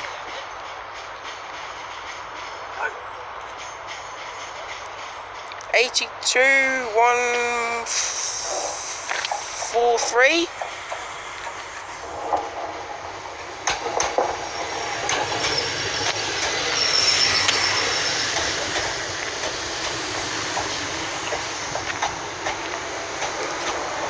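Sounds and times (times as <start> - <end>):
train wheels knocking over rail joints: 8.4 - 24.0
high wheel squeal: 13.7 - 22.2.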